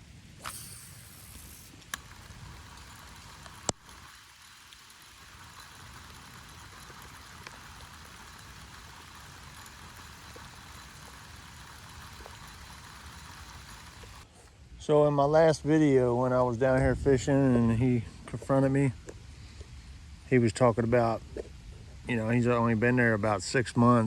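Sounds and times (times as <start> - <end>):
even hiss: 0.0 - 10.5.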